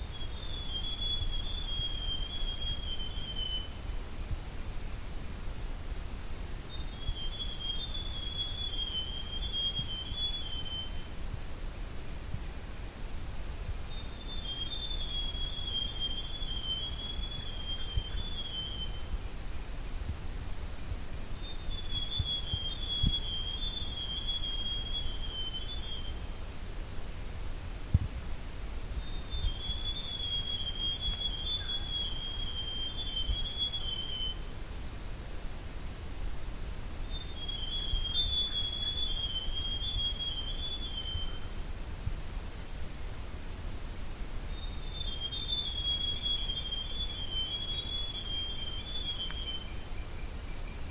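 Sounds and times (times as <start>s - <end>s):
high-pitched insect drone: 27.5s - 50.9s.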